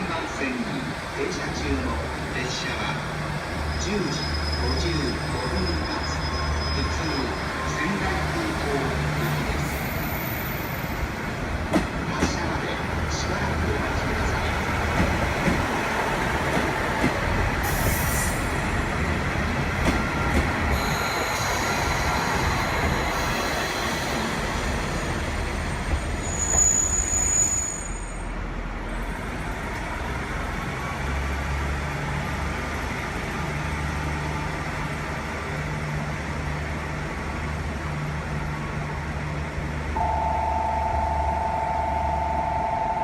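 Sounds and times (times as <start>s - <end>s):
diesel railcar engine hum: 0.0s - 43.0s
high wheel squeal: 3.6s - 7.9s, 20.7s - 24.2s, 26.2s - 28.3s
steady two-note tone: 40.0s - 43.0s.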